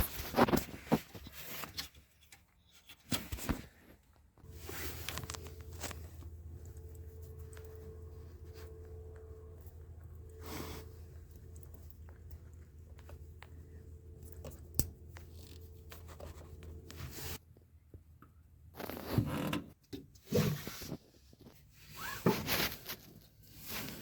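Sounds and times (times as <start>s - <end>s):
rustling and scraping: 0.0s - 17.6s, 18.7s - 24.0s
faint steady hum: 4.4s - 18.7s.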